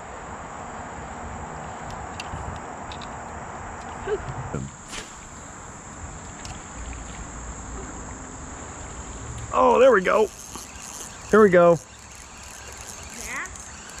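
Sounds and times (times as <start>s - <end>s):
insects trilling: 4.0s - 14.0s.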